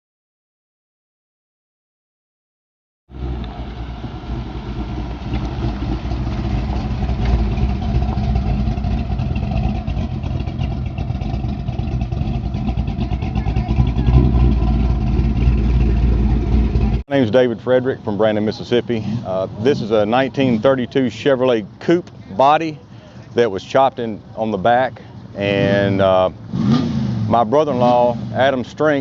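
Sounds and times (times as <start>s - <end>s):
car engine running: 3.1s - 22.6s.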